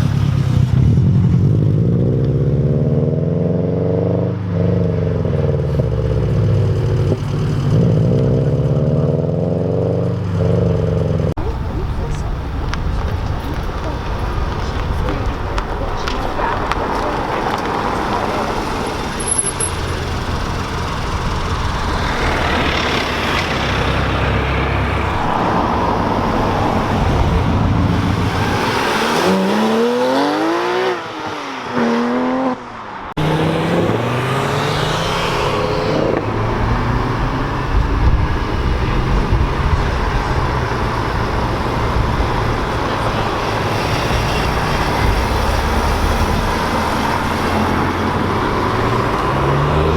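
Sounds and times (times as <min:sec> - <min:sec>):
traffic noise: 0:00.0 - 0:49.9
car accelerating hard: 0:12.1 - 0:49.9.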